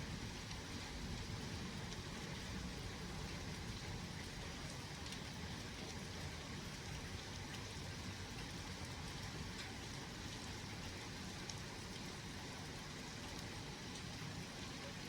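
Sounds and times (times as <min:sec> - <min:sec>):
steady rain hiss: 0:00.0 - 0:15.0
raindrop ticks: 0:04.9 - 0:06.0, 0:08.3 - 0:09.8.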